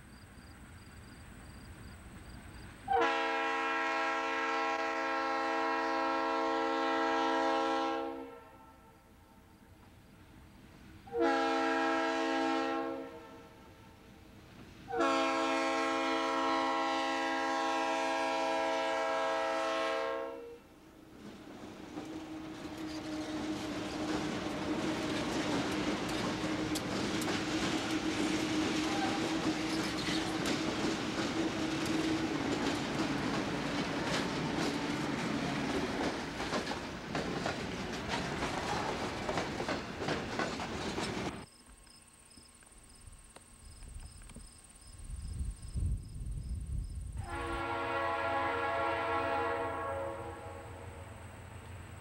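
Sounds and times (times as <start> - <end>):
locomotive air horn blasts: 2.9 - 9.3, 11.1 - 14.0, 14.9 - 20.7, 47.2 - 51.1
freight cars rumbling: 21.2 - 41.4
wheels clicking over rail joints: 21.2 - 41.5.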